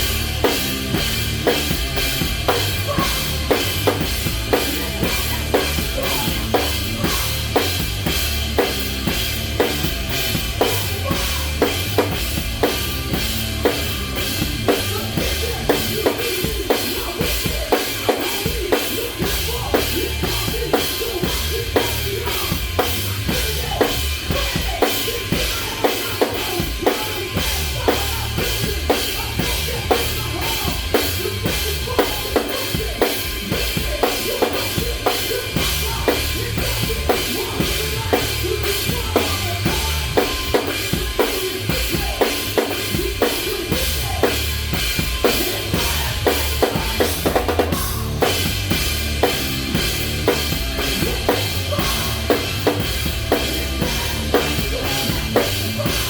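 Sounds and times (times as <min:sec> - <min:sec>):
drum kit beat: 0:00.0 - 0:56.0
rock band playing: 0:00.0 - 0:56.0.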